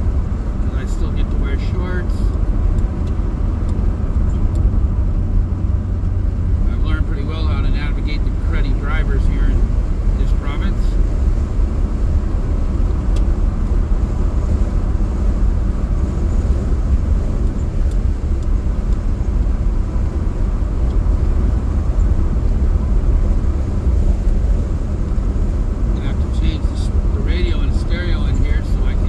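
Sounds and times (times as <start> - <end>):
car engine and road noise: 0.0 - 29.0.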